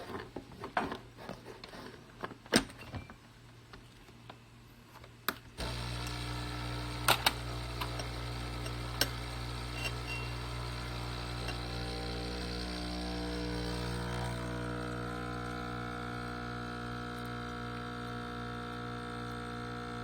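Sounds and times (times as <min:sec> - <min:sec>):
espresso machine pump buzzing: 0:05.6 - 0:20.0.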